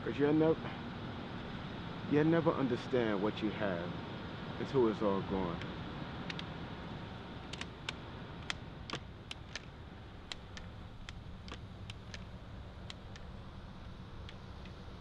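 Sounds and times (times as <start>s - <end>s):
steady low hum: 0.0s - 15.0s
sharp light clicks: 6.2s - 6.5s, 7.4s - 13.3s.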